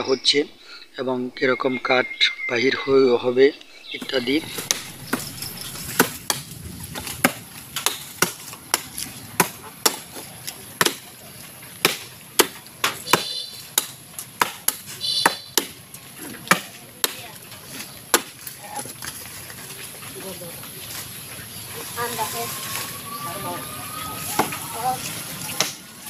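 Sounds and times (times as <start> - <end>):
axe chopping wood: 7.2 - 11.1, 11.8 - 15.8, 16.4 - 17.3, 18.1 - 18.4, 25.5 - 25.8.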